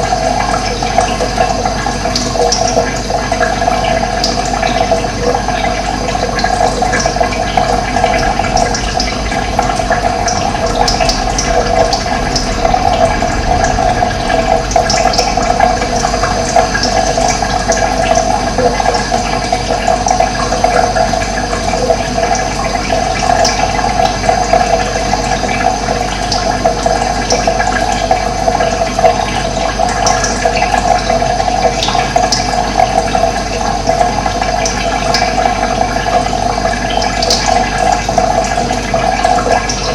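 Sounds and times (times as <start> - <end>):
running water rushing: 0.0 - 31.5.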